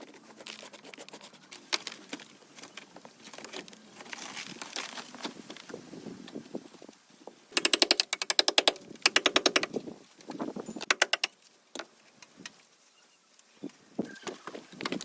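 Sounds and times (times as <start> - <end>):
workshop tool rapid clicks: 7.5 - 9.7, 10.8 - 11.4.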